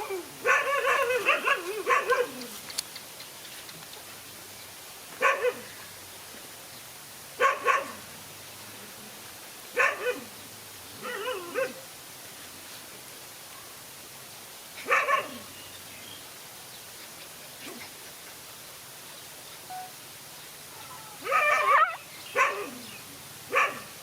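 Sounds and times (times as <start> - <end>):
dog barking: 0.4 - 2.4, 5.2 - 5.7, 7.4 - 8.0, 9.8 - 10.3, 11.0 - 11.8, 14.8 - 15.4, 21.2 - 22.8, 23.5 - 24.0.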